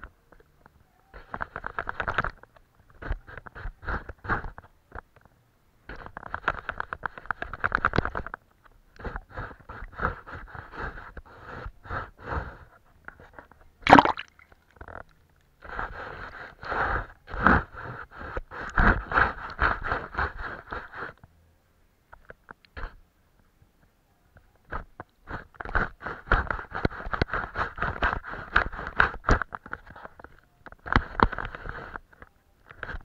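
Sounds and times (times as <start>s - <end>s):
paintbrush scratching on paper: 9.0s - 12.8s, 15.6s - 21.2s, 24.7s - 30.3s.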